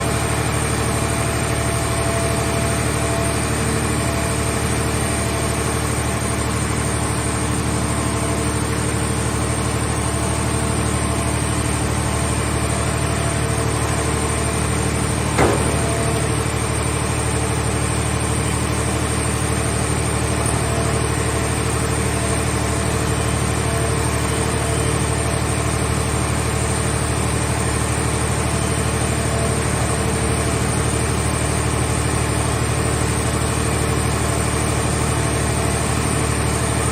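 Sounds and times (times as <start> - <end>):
engine humming: 4.5 - 24.5
sharp knock: 15.4 - 16.3.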